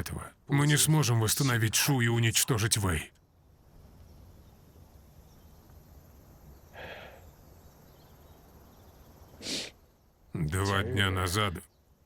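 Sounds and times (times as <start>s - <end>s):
person breathing: 6.8s - 7.3s.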